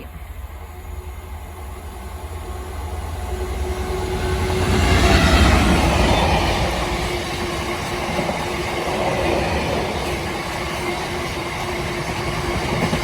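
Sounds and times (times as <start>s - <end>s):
diesel locomotive engine: 0.0s - 13.0s.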